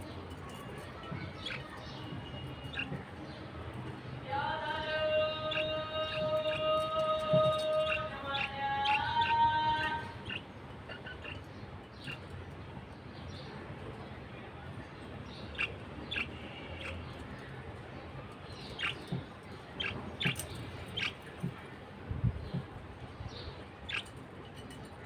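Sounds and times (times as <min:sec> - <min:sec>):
budgerigars chirping: 0:19.8 - 0:21.3, 0:23.9 - 0:24.2.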